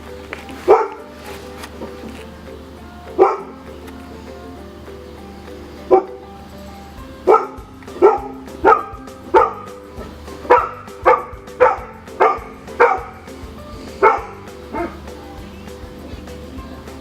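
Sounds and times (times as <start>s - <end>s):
dog barking: 0.6s - 1.1s, 3.2s - 3.6s, 5.9s - 6.2s, 7.3s - 13.3s, 14.0s - 15.1s.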